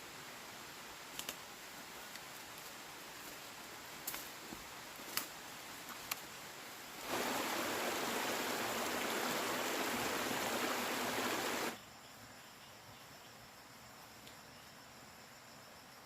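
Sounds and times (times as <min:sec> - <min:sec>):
water hissing: 0:07.0 - 0:11.8.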